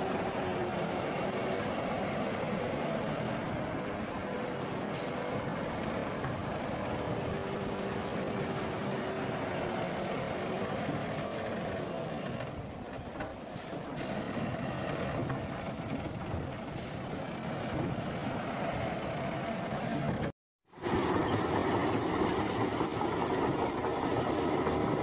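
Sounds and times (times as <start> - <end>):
heavy diesel machinery running: 13.6 - 25.0.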